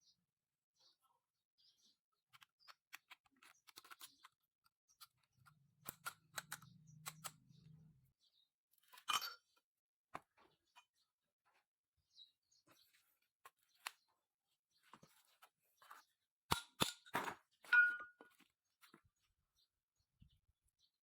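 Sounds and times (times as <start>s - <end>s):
hand tools clicking and tapping: 16.5s - 18.4s.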